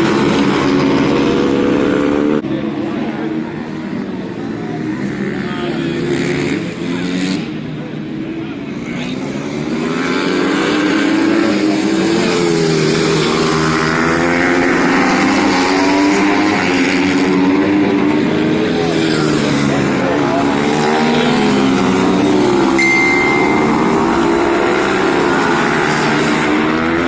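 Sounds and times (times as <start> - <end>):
pit bike engines revving: 0.0 - 27.0.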